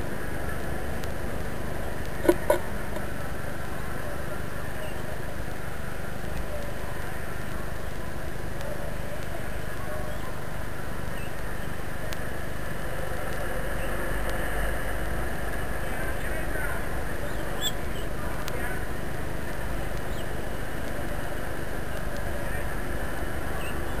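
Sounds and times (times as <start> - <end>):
city background rumble: 0.0 - 24.0.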